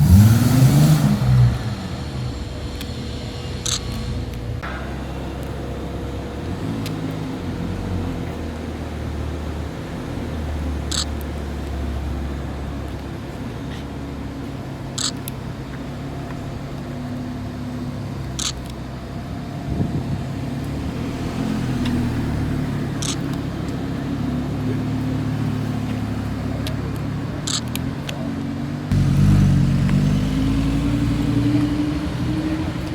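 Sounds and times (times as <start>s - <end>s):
car engine accelerating: 0.0s - 32.9s
car engines running: 0.0s - 32.9s
short sharp clicks: 3.6s - 4.5s, 10.9s - 11.3s, 15.0s - 15.4s, 18.4s - 18.8s, 23.0s - 23.4s, 26.6s - 28.2s.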